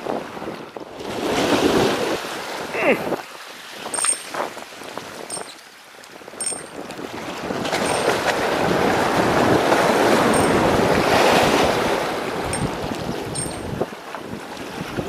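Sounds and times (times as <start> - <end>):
wind on microphone: 6.4 - 15.0.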